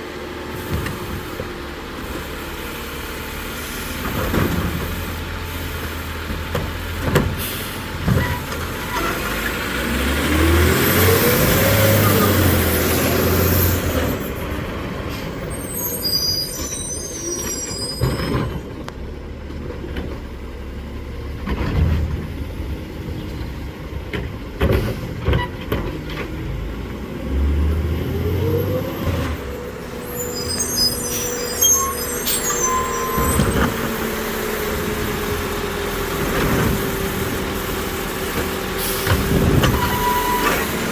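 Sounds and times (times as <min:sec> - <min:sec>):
garbage truck engine revving: 0:00.3 - 0:15.9, 0:26.3 - 0:40.9
cart dumping into hopper: 0:27.5 - 0:35.4, 0:36.0 - 0:40.9.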